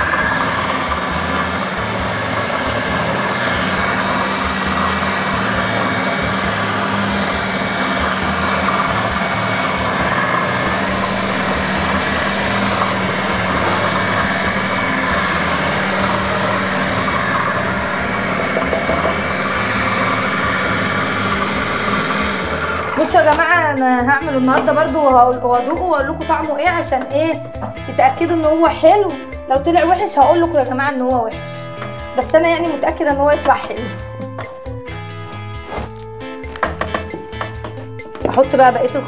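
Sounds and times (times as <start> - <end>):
food processor motor hum: 0.0 - 23.6.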